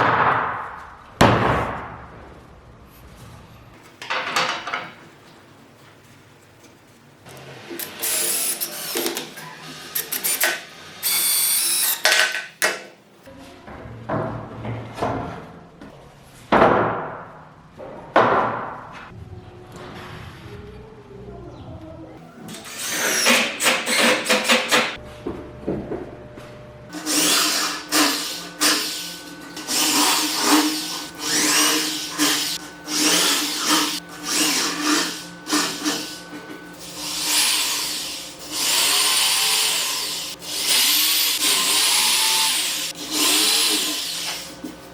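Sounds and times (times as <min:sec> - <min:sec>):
small power tool motor: 0:07.8 - 0:12.1, 0:27.0 - 0:44.8.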